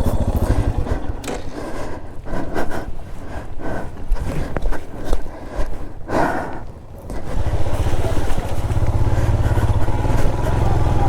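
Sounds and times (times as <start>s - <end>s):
motorcycle engine idling: 0.0s - 2.3s, 6.9s - 11.0s.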